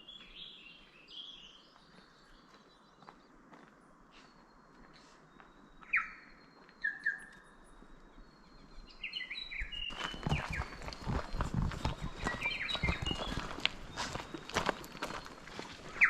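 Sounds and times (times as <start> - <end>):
birds whistling: 4.1 - 16.0.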